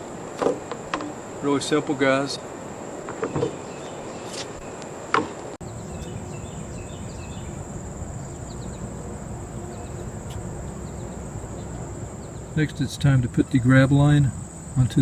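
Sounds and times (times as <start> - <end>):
crickets trilling: 0.0 - 15.0
sharp knocks: 0.4 - 1.2, 3.1 - 3.6, 5.1 - 5.5.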